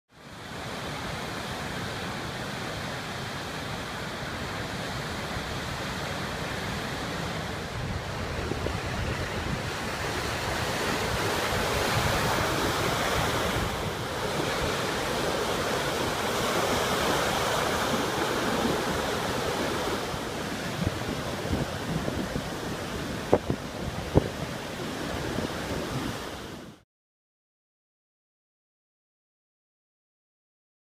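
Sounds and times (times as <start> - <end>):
ocean surf breaking: 0.2 - 26.8
wind rumble on microphone: 6.8 - 26.8.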